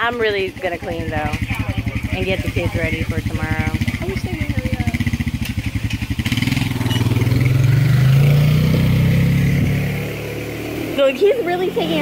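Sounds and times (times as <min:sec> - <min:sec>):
vehicle engine passing by: 0:00.0 - 0:12.0.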